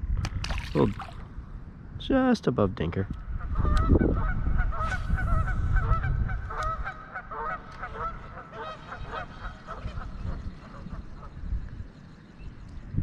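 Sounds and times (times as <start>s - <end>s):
wind rumble on microphone: 0.0s - 13.0s
flock of birds calling: 3.5s - 11.4s.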